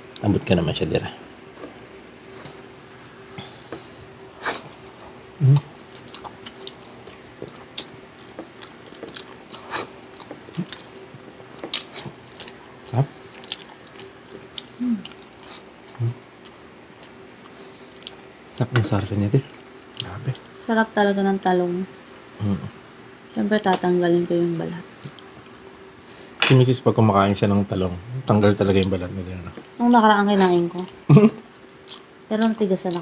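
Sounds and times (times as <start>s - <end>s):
chewing and lip-smacking: 4.5s - 18.7s, 19.5s - 20.6s, 24.2s - 25.7s, 30.4s - 33.0s.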